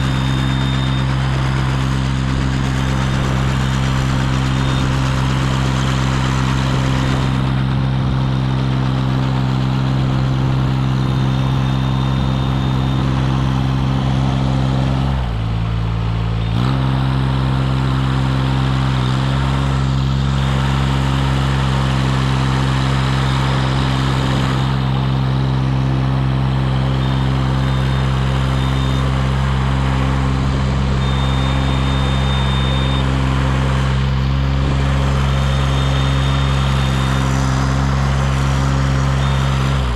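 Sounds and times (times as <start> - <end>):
aerial lift engine running: 0.0 - 39.9.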